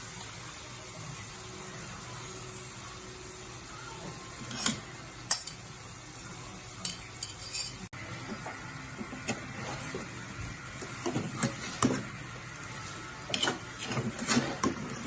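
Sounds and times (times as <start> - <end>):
metal utensils clinking on cookware: 4.4 - 5.7, 6.8 - 7.9, 13.3 - 15.0.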